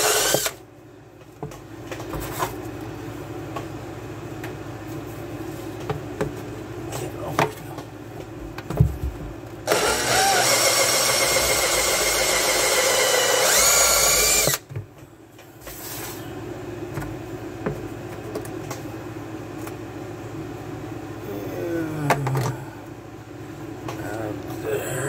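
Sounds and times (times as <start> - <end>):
power drill running: 0.0 - 0.6, 9.7 - 14.6.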